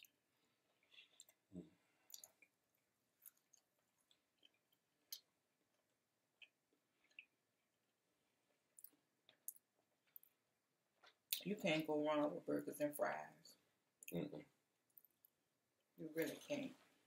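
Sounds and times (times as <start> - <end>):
chewing fries: 0.0 - 7.6, 8.5 - 11.4.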